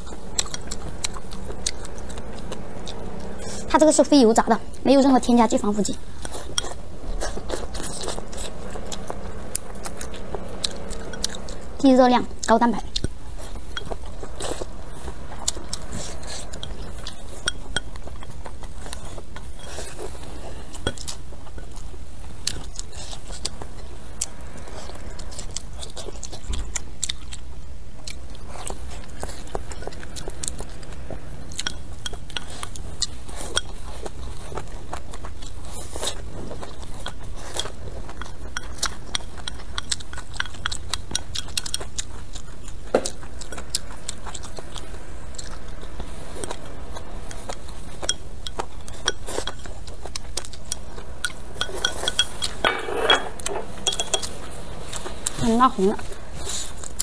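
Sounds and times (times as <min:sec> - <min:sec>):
chewing and biting food: 0:00.0 - 0:57.0
low steady hum: 0:00.0 - 0:57.0
chopsticks clicking on ceramic bowl: 0:50.5 - 0:54.3.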